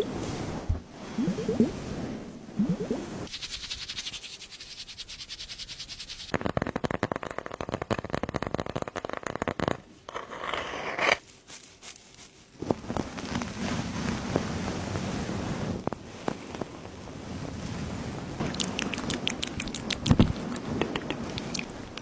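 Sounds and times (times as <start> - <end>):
slime crackling and popping: 6.3 - 9.8.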